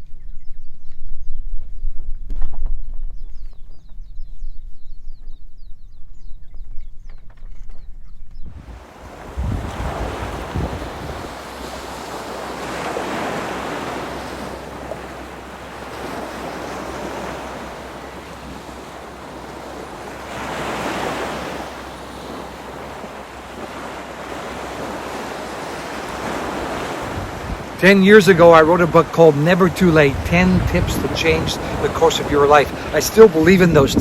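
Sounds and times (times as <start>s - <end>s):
wind buffeting microphone: 0.0s - 34.0s
sea waves washing: 8.6s - 34.0s.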